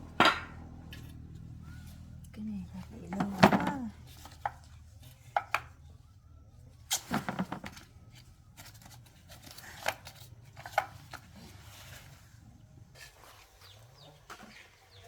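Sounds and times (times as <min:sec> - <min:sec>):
hard objects clicking and knocking: 0:00.0 - 0:01.0, 0:03.1 - 0:05.8, 0:06.9 - 0:07.9.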